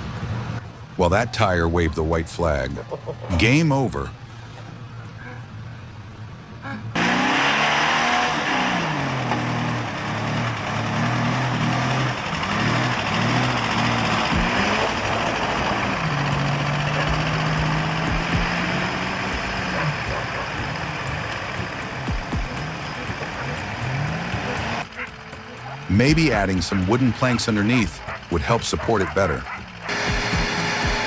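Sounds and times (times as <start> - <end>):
heavy machine engine revving: 7.0 - 28.4, 29.6 - 31.0
loud mechanical noise: 7.0 - 31.0.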